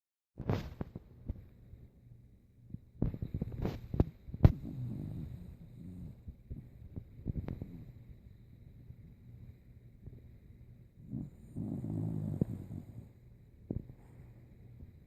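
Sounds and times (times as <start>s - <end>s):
dog snoring raspily: 4.4s - 6.3s, 11.0s - 13.2s.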